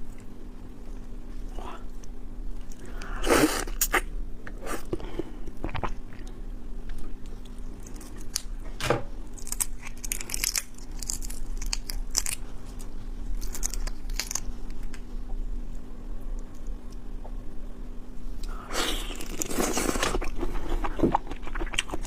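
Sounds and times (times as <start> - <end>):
faint low hum: 0.0 - 22.0
shell tearing crackles: 9.3 - 12.4, 13.3 - 15.0
wet chewing and biting: 9.3 - 15.0, 18.8 - 22.0.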